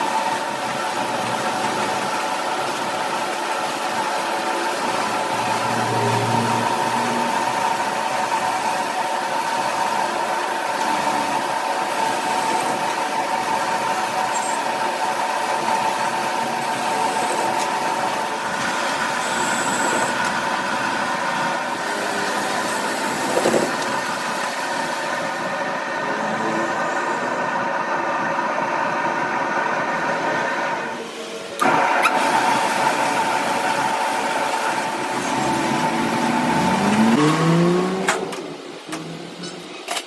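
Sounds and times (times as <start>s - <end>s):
machine humming: 0.0s - 39.8s
machine clatter: 22.0s - 25.1s.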